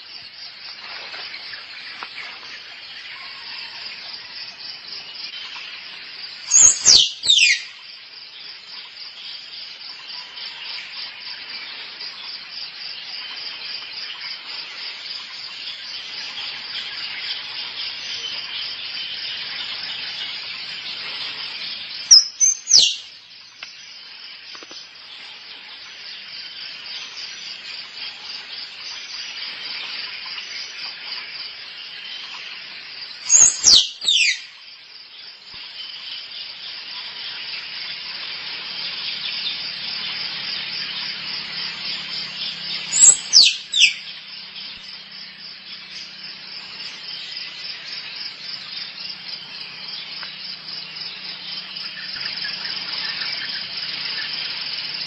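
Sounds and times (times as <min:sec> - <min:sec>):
insects buzzing: 0:00.0 - 0:55.0
squirrel chirps: 0:06.5 - 0:07.7, 0:22.1 - 0:23.0, 0:33.3 - 0:34.4, 0:42.9 - 0:44.0.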